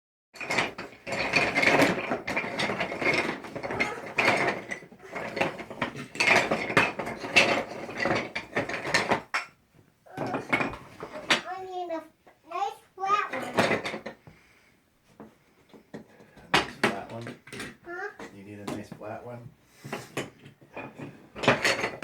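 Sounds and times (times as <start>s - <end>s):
toy pieces clicking and clattering: 0.4s - 9.2s.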